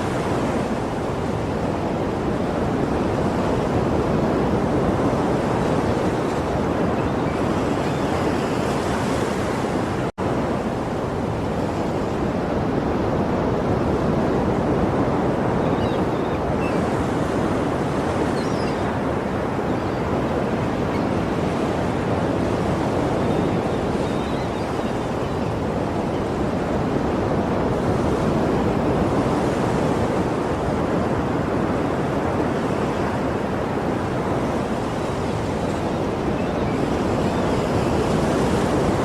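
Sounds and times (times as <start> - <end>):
waves washing on shore: 0.0 - 39.0.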